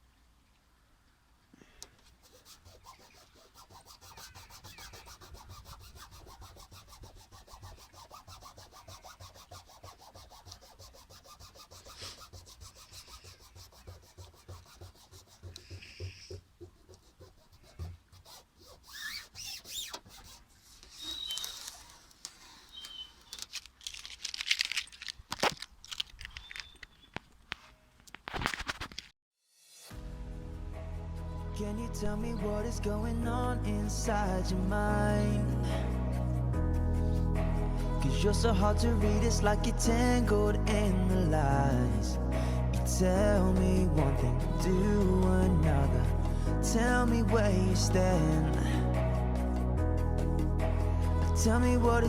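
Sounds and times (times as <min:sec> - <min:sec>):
rubbing and scraping on surface: 0:02.0 - 0:26.9, 0:27.5 - 0:29.1, 0:35.4 - 0:49.6.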